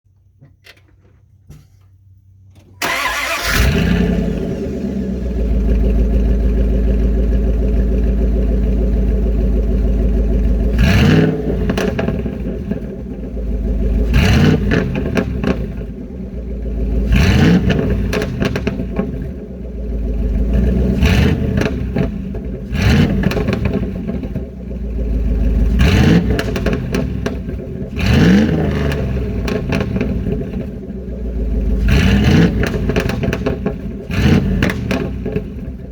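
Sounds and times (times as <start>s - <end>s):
car engine starting and revving: 2.5s - 35.9s
exhaust backfire pops: 10.7s - 13.2s, 17.1s - 19.4s, 21.0s - 24.5s, 25.8s - 30.7s, 31.8s - 35.9s.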